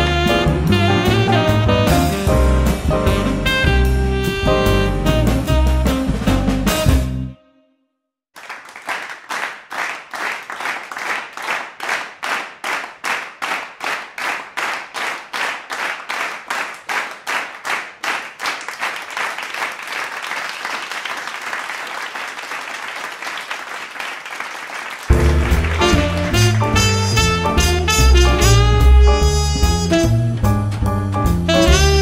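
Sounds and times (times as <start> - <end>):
audience applause: 8.4 - 27.2
audience clapping in unison: 8.4 - 28.7.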